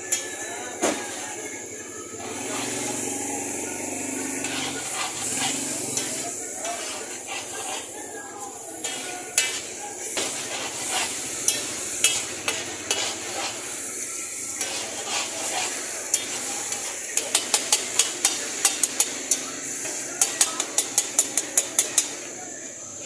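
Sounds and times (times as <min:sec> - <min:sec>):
food sizzling in oil: 0:02.2 - 0:22.3
metal spatulas scraping: 0:03.9 - 0:22.2
spatulas clanking on griddle: 0:04.2 - 0:13.8, 0:14.5 - 0:22.3.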